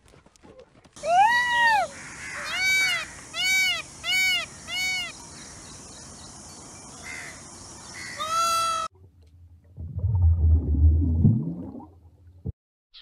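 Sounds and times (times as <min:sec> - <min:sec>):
peacock calling: 0:01.0 - 0:08.9.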